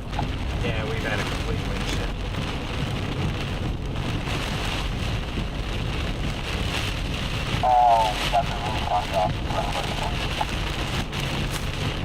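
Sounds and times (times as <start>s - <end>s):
heavy rain lashing a vehicle: 0.0s - 12.0s
low road rumble: 0.0s - 12.0s.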